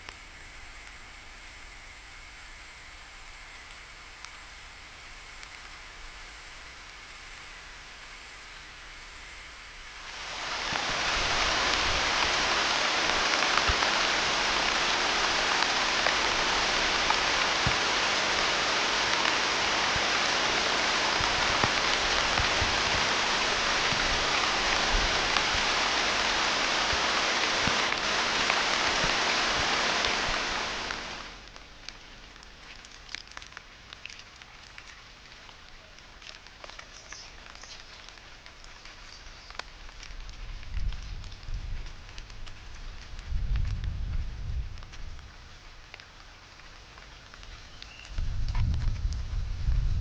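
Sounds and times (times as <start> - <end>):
rain drop ticks: 3.5 - 4.5, 5.3 - 5.9, 10.0 - 49.9
heavy rain falling: 4.0 - 50.0.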